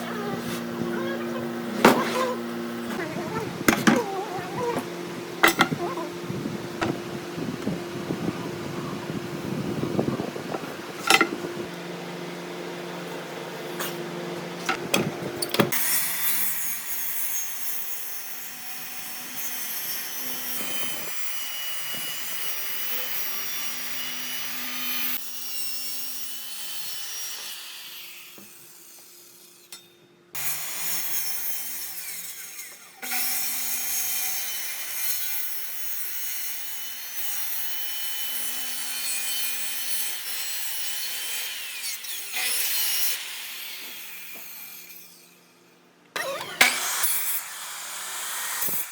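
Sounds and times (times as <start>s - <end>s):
power tool scraping wood: 0.0s - 8.2s, 46.2s - 48.9s.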